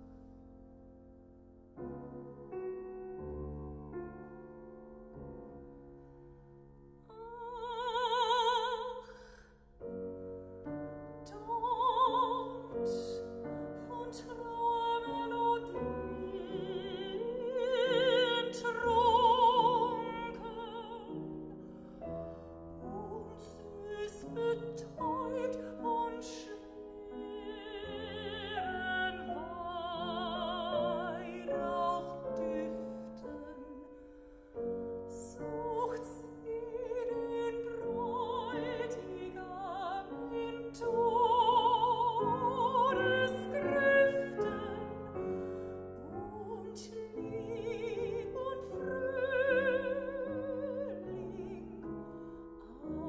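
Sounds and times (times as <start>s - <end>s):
piano accompaniment: 0.0s - 8.9s, 9.6s - 53.0s
woman singing with vibrato: 7.1s - 9.2s, 11.3s - 21.4s, 22.8s - 34.0s, 35.1s - 45.4s, 46.0s - 52.0s.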